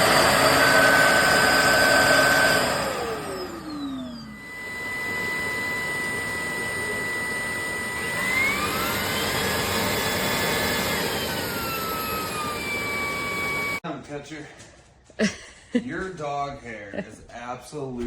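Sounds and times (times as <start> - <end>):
vacuum motor whining: 0.0 - 13.8.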